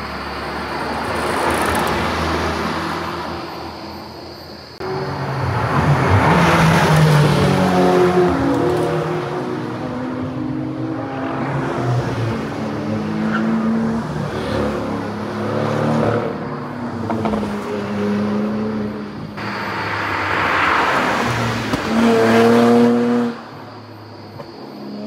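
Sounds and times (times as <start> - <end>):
car passing close: 4.8 - 23.9
sports car engines accelerating: 4.9 - 23.5.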